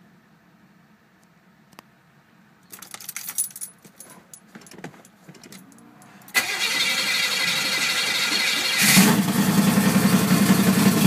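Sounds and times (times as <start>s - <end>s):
keys jangling: 2.7s - 6.4s
car engine starting and running: 5.2s - 11.0s.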